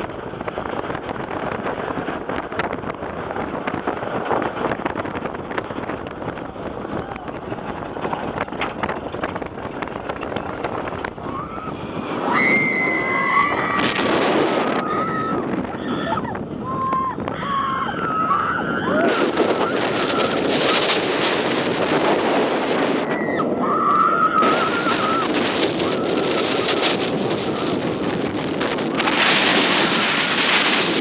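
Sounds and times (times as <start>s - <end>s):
roller coaster rattling on track: 0.0s - 31.0s
wind rushing over microphone: 0.0s - 31.0s
riders screaming: 11.2s - 21.2s, 22.9s - 27.8s.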